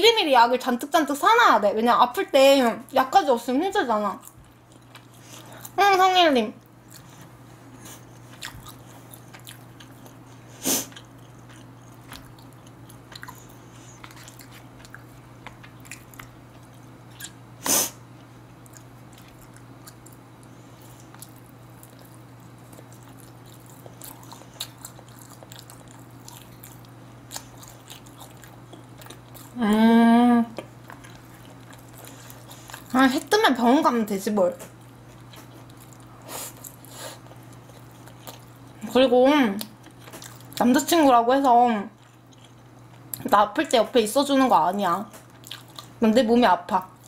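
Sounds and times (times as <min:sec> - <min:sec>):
steady low hum: 0:00.0 - 0:47.0
close-miked chewing: 0:04.1 - 0:05.8, 0:06.6 - 0:17.4, 0:18.2 - 0:29.9, 0:30.5 - 0:33.4, 0:34.5 - 0:38.8, 0:39.6 - 0:43.9, 0:44.8 - 0:46.0.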